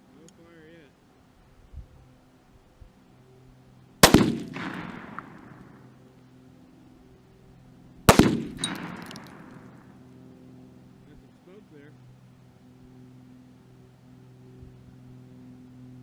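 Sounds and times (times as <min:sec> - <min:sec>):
rifle shots echoing: 0:04.0 - 0:06.0, 0:08.1 - 0:10.0.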